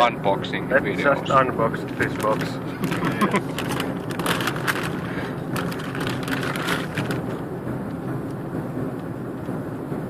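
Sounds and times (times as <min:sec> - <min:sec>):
steady low hum: 0:00.0 - 0:10.0
bag scraping and rustling: 0:02.0 - 0:07.4.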